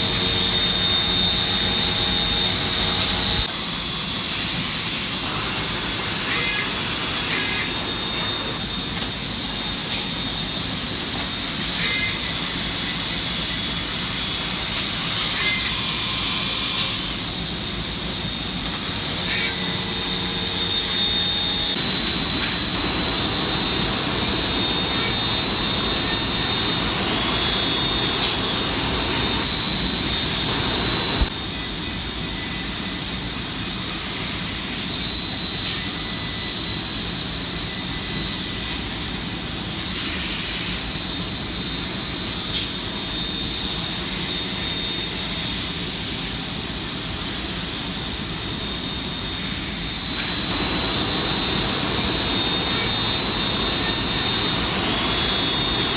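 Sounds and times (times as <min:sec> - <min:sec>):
machine rushing with high whine: 0:00.0 - 0:55.9.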